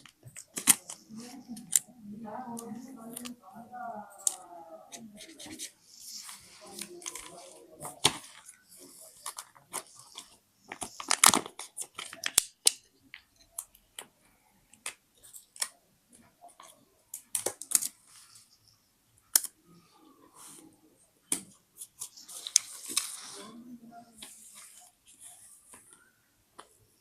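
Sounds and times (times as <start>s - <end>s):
paper rustling: 0.0s - 1.9s, 4.1s - 12.8s, 21.8s - 26.1s.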